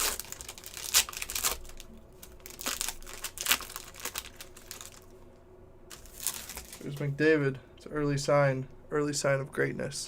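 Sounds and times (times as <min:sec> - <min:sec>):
foil wrappers crinkling and tearing: 0:00.0 - 0:05.1, 0:05.9 - 0:07.1.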